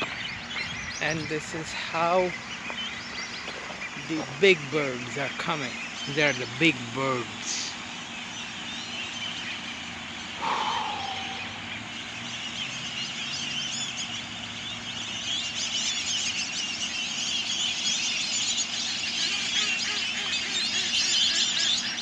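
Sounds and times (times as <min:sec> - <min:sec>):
birds chirping and twittering: 0:00.0 - 0:22.0
bird call falling in pitch: 0:10.4 - 0:11.8.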